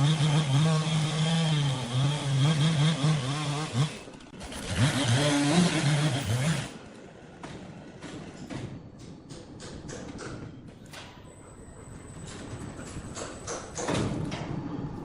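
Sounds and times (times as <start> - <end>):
chainsaw engine revving: 0.0 - 6.8.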